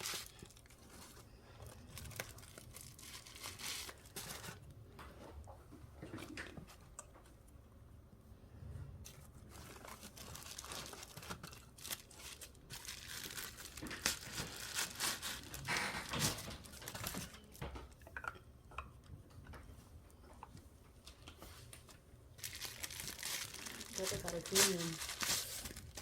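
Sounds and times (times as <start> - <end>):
packaging crinkling by hand: 0.0 - 4.8, 9.0 - 18.0, 21.0 - 26.0.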